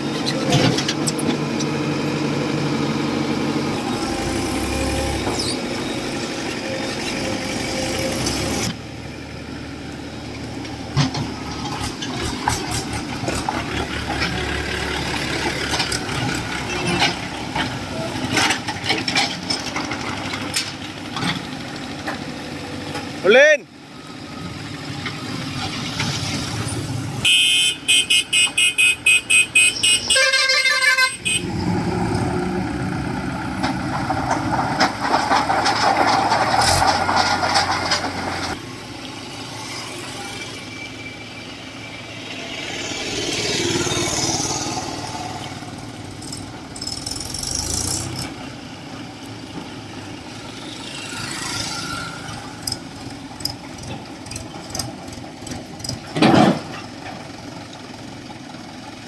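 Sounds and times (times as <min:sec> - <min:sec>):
heavy machinery running: 0:00.2 - 0:08.8
vehicle horn tooting: 0:27.2 - 0:31.5.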